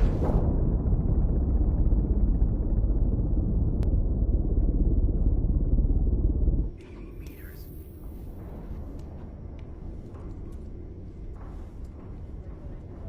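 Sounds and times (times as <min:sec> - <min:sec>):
low bass rumble: 0:00.0 - 0:06.8.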